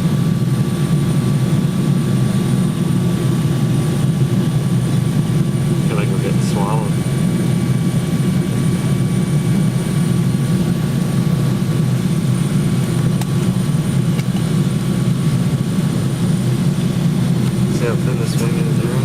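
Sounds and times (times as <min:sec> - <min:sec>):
faint steady whines: 0:00.0 - 0:19.0
jet cabin engine drone: 0:00.0 - 0:19.0.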